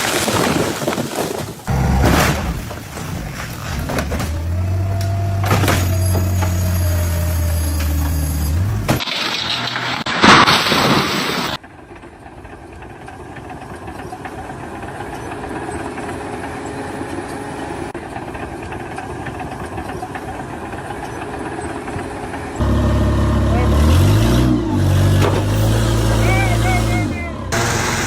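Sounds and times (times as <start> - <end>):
engine running steadily: 11.7 - 28.0.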